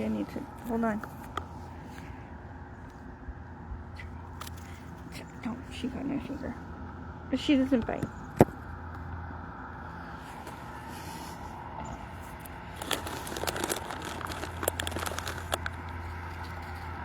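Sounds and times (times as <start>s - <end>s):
distant traffic hum: 0.0s - 17.0s
snack bag crinkling: 12.3s - 16.9s.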